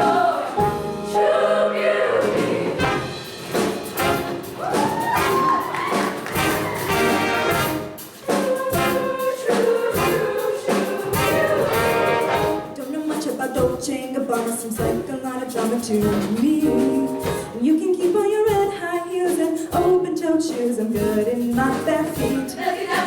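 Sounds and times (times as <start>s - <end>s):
people singing: 0.0s - 18.0s, 19.3s - 23.0s
live band with brass: 2.4s - 12.9s.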